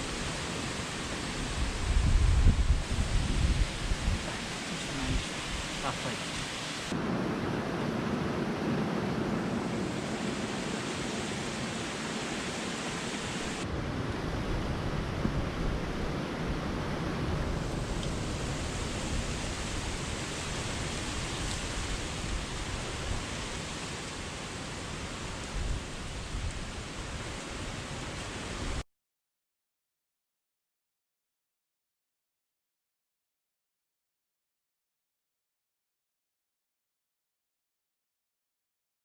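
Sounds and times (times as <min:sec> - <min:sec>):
waterfall rushing water roar: 0:00.0 - 0:28.8.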